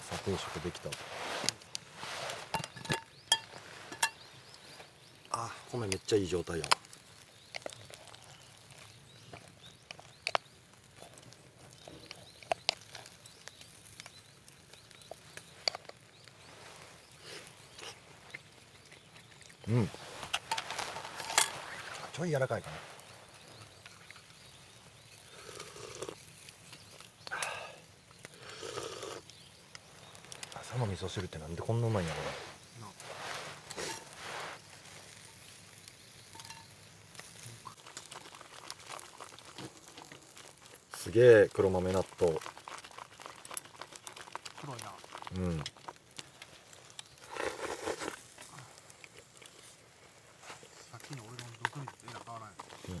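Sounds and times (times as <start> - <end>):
chopsticks clinking against bowls: 2.5 - 4.3, 36.3 - 36.8.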